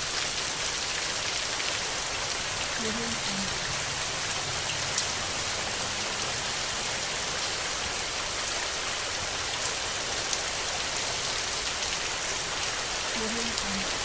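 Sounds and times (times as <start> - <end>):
rain hissing on a surface: 0.0 - 14.0
rain drop ticks: 4.7 - 5.2, 13.0 - 14.0.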